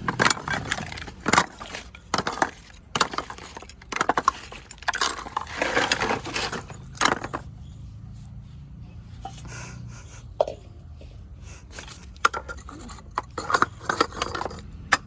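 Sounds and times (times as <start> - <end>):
clay cups crunching and crackling: 0.0 - 9.7, 10.4 - 15.0.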